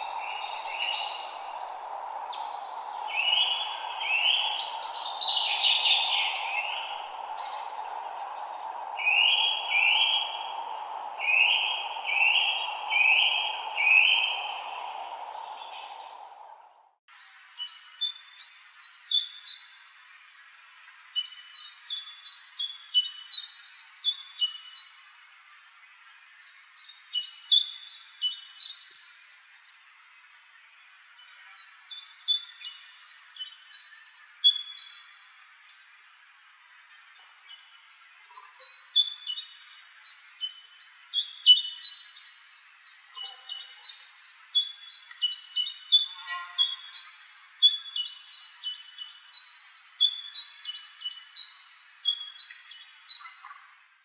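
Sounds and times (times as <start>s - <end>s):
songbird singing: 0.0s - 16.8s.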